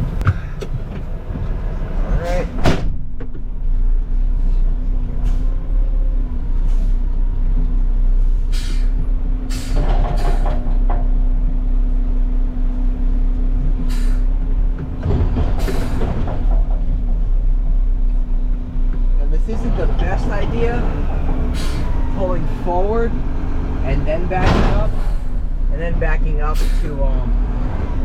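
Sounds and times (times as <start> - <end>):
diesel truck engine running: 0.0 - 28.0
air brake hisses: 8.3 - 10.4, 13.9 - 14.3, 21.5 - 22.0.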